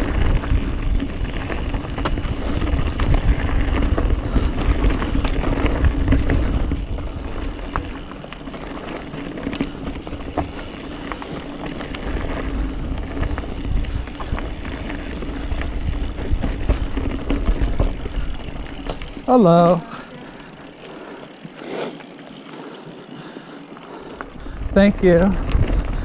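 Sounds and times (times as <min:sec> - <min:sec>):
wind buffeting microphone: 0:00.0 - 0:08.1, 0:09.6 - 0:19.3, 0:24.3 - 0:26.0
bike rattling over bumps: 0:00.0 - 0:26.0
bike tyres rolling over dirt: 0:00.0 - 0:26.0.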